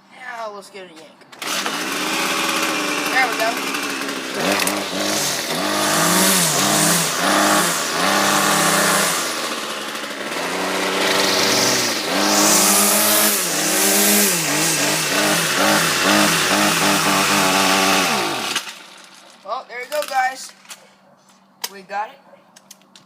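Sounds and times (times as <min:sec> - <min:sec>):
small gas engine revving: 0:01.4 - 0:19.4.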